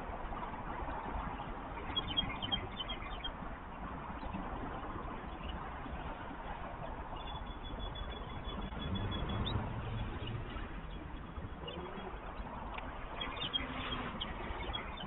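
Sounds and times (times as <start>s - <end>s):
steady low rumble: 0.0s - 15.0s
faint high chirps: 7.1s - 15.0s.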